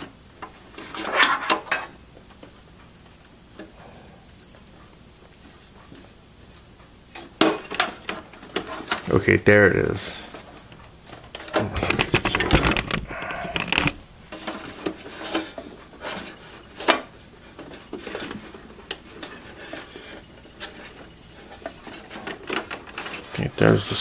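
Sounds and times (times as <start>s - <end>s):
cables rubbing and clattering: 10.8s - 23.6s.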